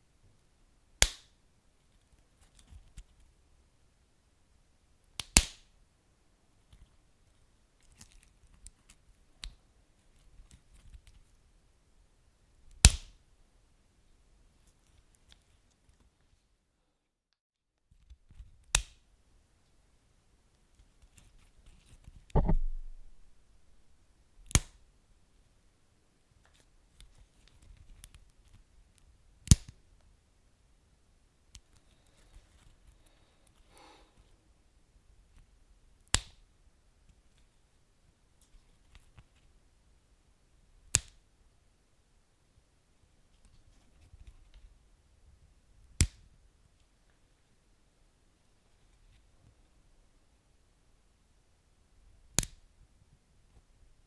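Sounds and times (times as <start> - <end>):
wood fire pops: 22.4 - 23.4.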